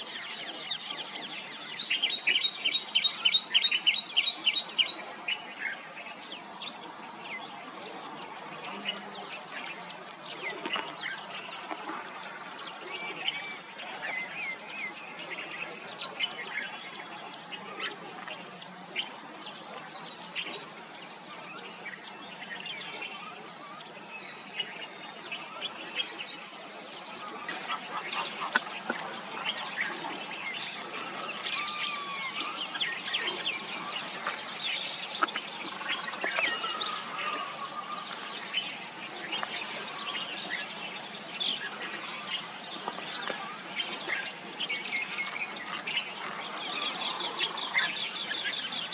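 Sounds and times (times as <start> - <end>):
birds calling: 27.0 - 48.9.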